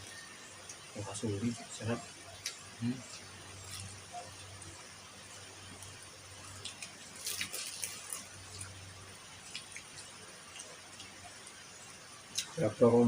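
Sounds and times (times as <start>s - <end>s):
wet chewing and lip-smacking: 6.4s - 11.4s.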